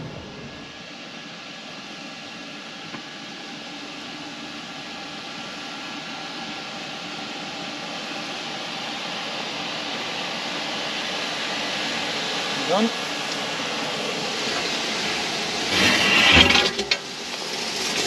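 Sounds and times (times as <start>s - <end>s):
boat motor running: 0.0s - 0.8s
wind and water rushing: 0.0s - 1.0s.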